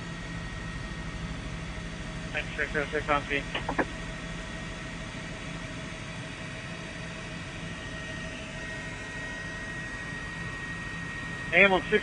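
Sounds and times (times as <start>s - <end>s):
radio hiss and hum: 2.4s - 4.1s.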